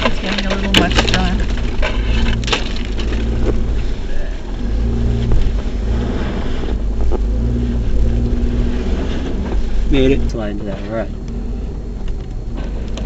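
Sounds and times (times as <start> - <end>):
knocks from rough ground: 0.0 - 3.8
car engine running under load: 0.0 - 13.0.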